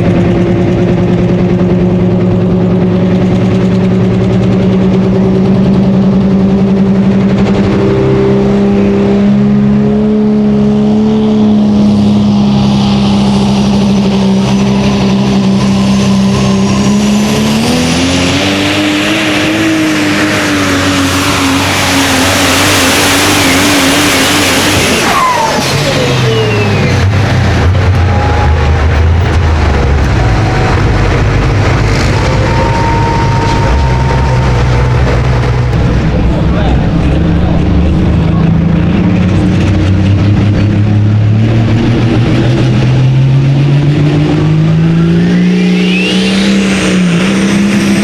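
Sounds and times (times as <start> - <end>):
pulling vehicle engine at full power: 0.0 - 48.0
high whine: 27.9 - 43.5.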